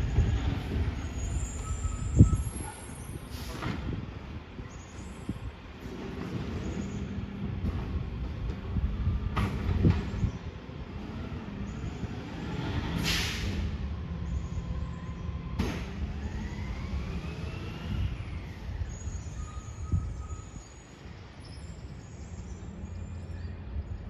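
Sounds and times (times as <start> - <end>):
air brake hiss: 3.2 - 3.7, 13.0 - 13.7.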